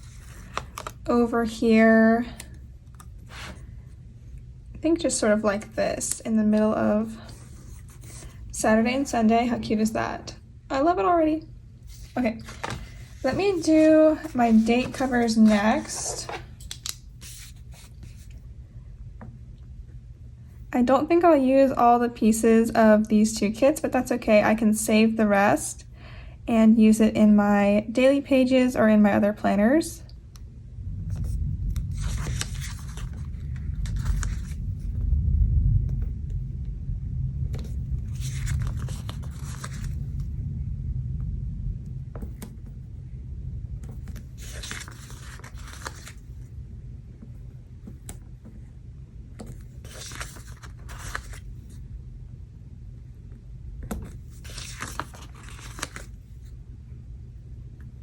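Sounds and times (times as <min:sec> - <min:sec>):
steady low rumble: 0:00.0 - 0:58.0
stickers being peeled off: 0:14.3 - 0:18.4, 0:49.5 - 0:51.4
low rumble of thunder: 0:30.5 - 0:45.0
sticker paper crinkling and tearing: 0:31.8 - 0:34.8, 0:37.6 - 0:40.0, 0:44.1 - 0:46.3, 0:49.5 - 0:51.7, 0:53.9 - 0:56.2.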